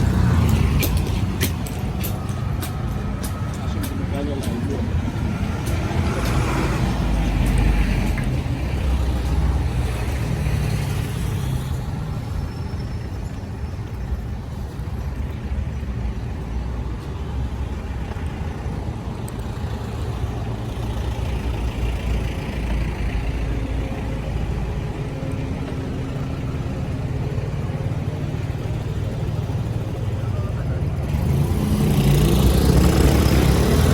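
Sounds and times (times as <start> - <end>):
wind and vibration rumble: 0.0 - 10.4
road traffic: 0.0 - 33.9.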